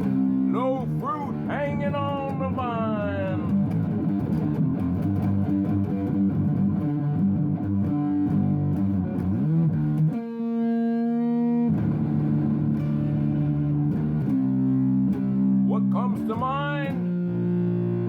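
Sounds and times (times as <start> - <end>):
person singing: 0.0 - 3.7, 15.7 - 17.0
guitar playing: 0.0 - 15.6.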